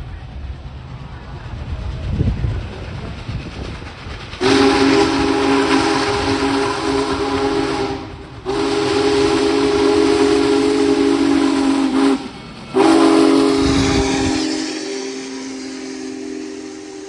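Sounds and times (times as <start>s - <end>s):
passing train hiss and rumble: 0.0s - 17.0s
steam locomotive chime whistle: 4.4s - 17.0s.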